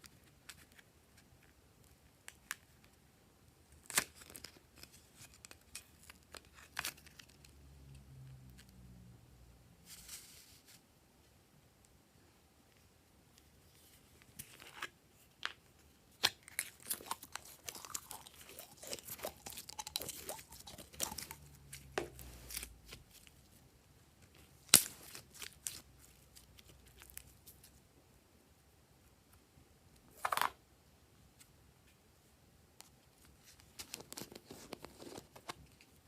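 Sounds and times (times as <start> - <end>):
slime crackling and popping: 16.2 - 23.2
slime squelch: 16.2 - 23.3.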